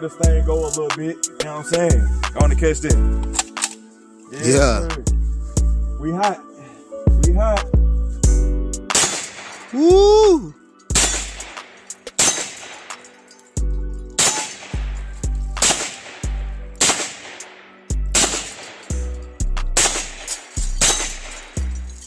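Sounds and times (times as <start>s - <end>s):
person shouting: 4.4s - 5.0s, 9.8s - 10.6s
pistol shots with echo: 8.9s - 9.8s, 11.0s - 13.3s, 14.2s - 15.0s, 15.6s - 19.0s, 19.8s - 21.6s.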